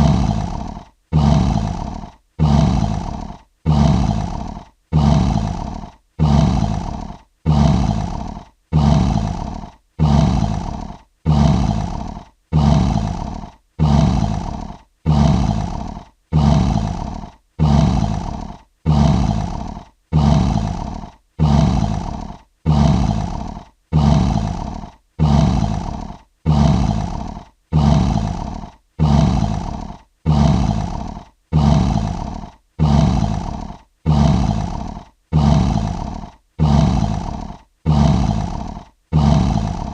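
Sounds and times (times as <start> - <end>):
lion roaring: 0.0 - 39.9.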